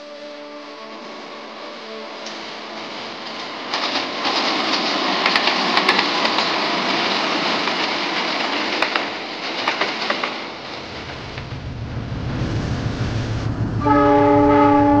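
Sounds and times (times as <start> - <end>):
train wheels rushing on rails: 0.0 - 15.0
wheels clicking over rail joints: 2.2 - 10.8.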